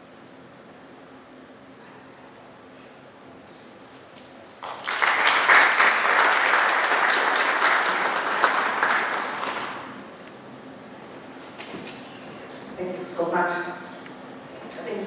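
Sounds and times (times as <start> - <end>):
audience applauding: 4.6 - 10.1.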